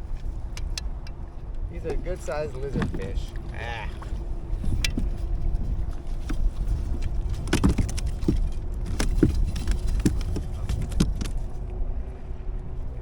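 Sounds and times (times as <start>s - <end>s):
wind rumble on microphone: 0.0s - 13.0s
handling clicks and knocks: 6.1s - 11.5s.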